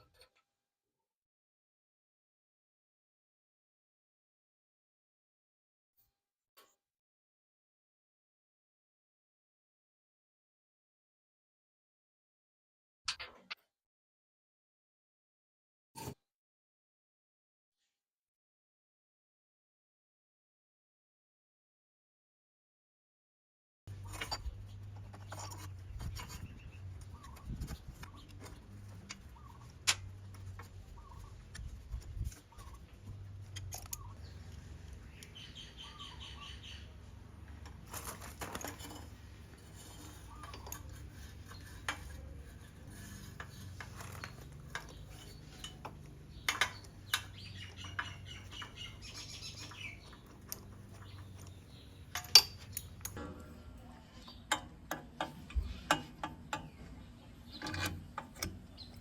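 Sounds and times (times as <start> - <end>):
faint bird chirps: 35.1 - 37.0, 46.3 - 50.3.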